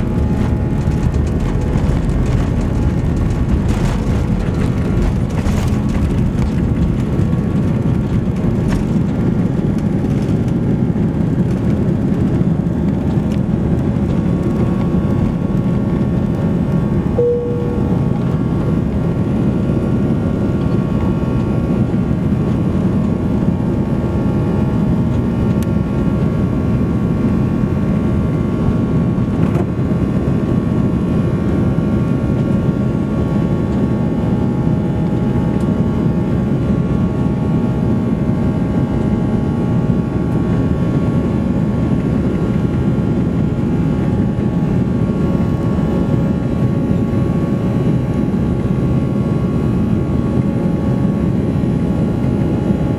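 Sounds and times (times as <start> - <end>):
faint engine tones: 0.0 - 25.5
jet engine rumble in cabin: 0.0 - 52.9.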